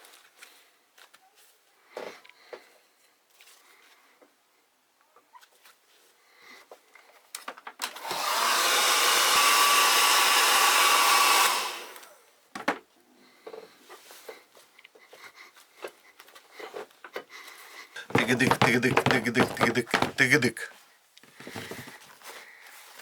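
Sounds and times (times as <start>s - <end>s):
hot-air blower running: 8.0s - 11.9s
handling knocks: 18.1s - 20.6s.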